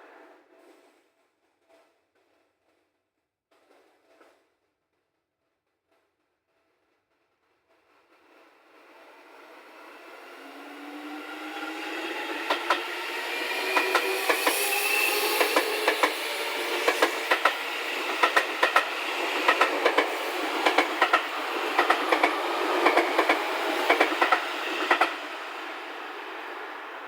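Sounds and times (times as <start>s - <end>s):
electric train motor whine: 9.0s - 27.0s
train wheels clacking on rail joints: 10.8s - 25.7s.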